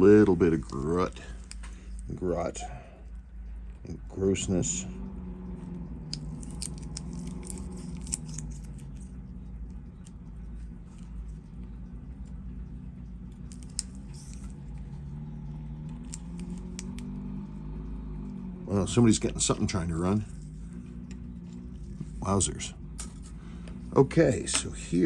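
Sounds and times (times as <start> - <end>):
small engine droning unevenly: 0.0 - 25.0
small tools clicking on watch parts: 5.5 - 17.4.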